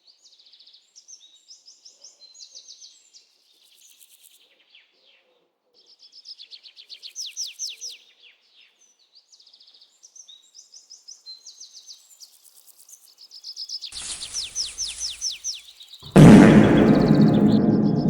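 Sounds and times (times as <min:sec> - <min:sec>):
steady rushing noise: 0:16.1 - 0:18.0.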